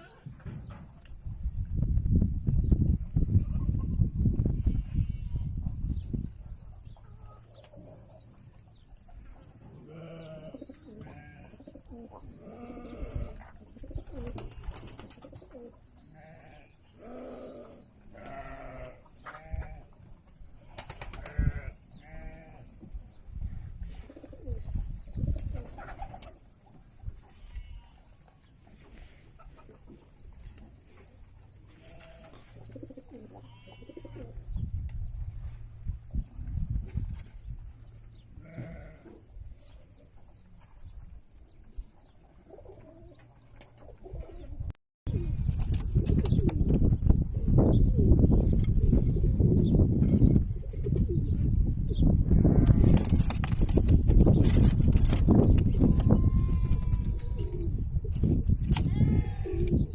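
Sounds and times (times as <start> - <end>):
small birds chirping: 0.0 - 34.9, 36.2 - 59.9
pigeons cooing: 9.1 - 19.9, 23.9 - 26.5, 31.7 - 34.5, 41.6 - 51.5, 52.4 - 57.8, 59.1 - 59.9.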